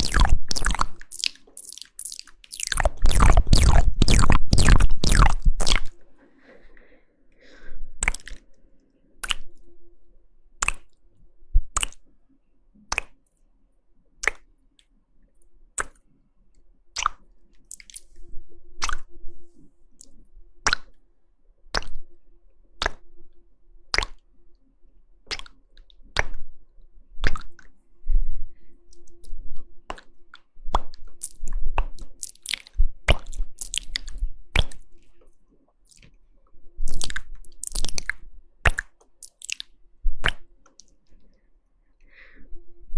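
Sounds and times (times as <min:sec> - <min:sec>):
wet tongue and lip clicks: 0:00.0 - 0:06.0, 0:08.0 - 0:09.6, 0:10.6 - 0:11.0, 0:11.7 - 0:12.1, 0:12.9 - 0:13.4, 0:14.2 - 0:14.9, 0:15.8 - 0:16.1, 0:17.0 - 0:18.2, 0:18.8 - 0:19.1, 0:20.0 - 0:21.0, 0:21.7 - 0:22.1, 0:22.8 - 0:23.0, 0:23.9 - 0:24.2, 0:25.3 - 0:26.4, 0:27.2 - 0:27.8, 0:28.9 - 0:35.1, 0:35.8 - 0:36.2, 0:36.8 - 0:41.2.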